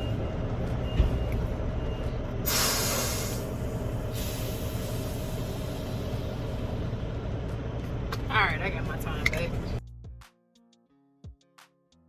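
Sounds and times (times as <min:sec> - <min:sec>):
diesel truck engine idling: 0:00.0 - 0:09.8
air brake hissing: 0:02.4 - 0:06.6.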